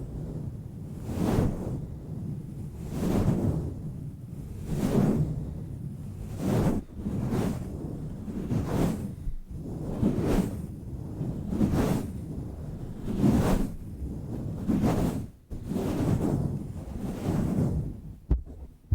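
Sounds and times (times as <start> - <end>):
microphone cover swishing: 17.3 - 18.9.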